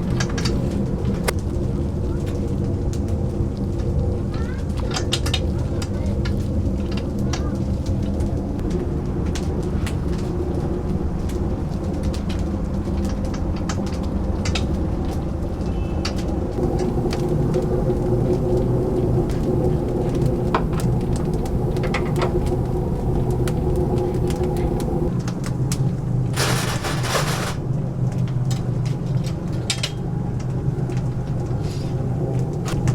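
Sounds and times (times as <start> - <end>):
chicken crackling while cooking: 0.1 - 26.0
kitchen machinery humming: 16.6 - 25.1, 26.4 - 27.6.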